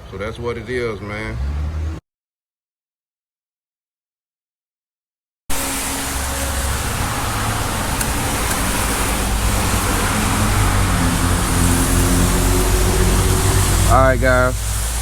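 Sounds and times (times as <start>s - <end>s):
heavy rain falling: 5.5s - 15.0s.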